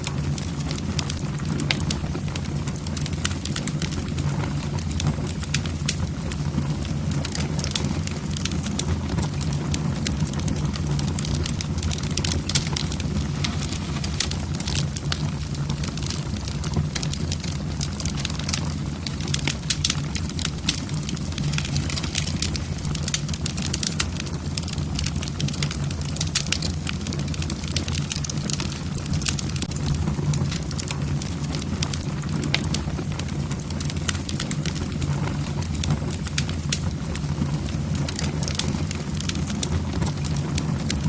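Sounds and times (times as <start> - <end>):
logs crackling and popping: 0.0 - 41.0
low rumble of flames: 0.0 - 41.0.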